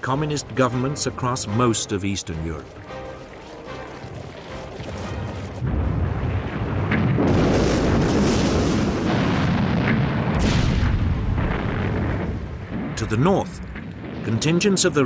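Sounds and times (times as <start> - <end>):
background music: 0.0 - 6.4
explosions and artillery fire: 5.6 - 15.0.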